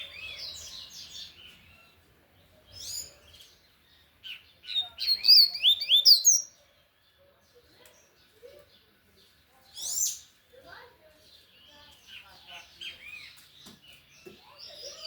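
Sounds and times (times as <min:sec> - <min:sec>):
bird singing whistled notes: 0:04.2 - 0:06.6.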